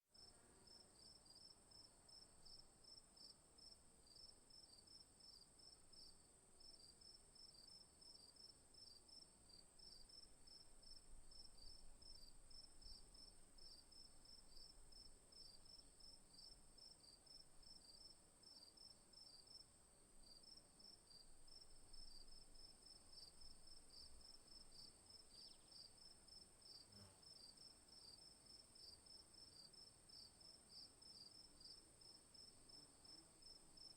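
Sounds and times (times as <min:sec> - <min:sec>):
insects chirping: 0:20.2 - 0:33.9.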